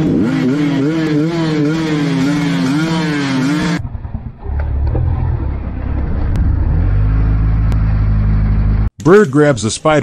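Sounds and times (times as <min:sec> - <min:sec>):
low mechanical rumble: 0:03.8 - 0:08.9.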